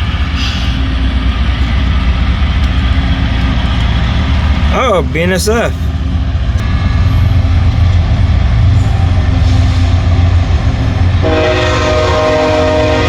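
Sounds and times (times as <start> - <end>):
model locomotive engine rumble: 0.0 - 13.0
multi-note train horn: 6.6 - 13.0.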